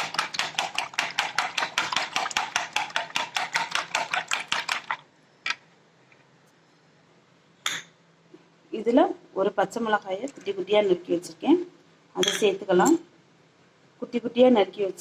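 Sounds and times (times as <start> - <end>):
whisk clicking against bowl: 0.0 - 5.0.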